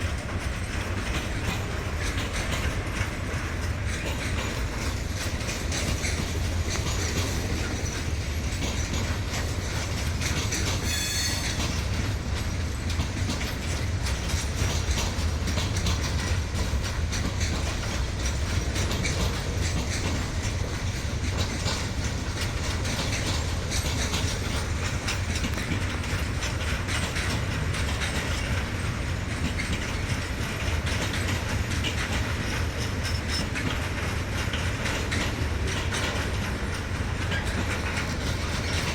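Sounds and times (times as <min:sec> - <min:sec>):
freight wagons clattering over rails: 0:00.0 - 0:38.9
high wheel squeal: 0:10.8 - 0:11.8.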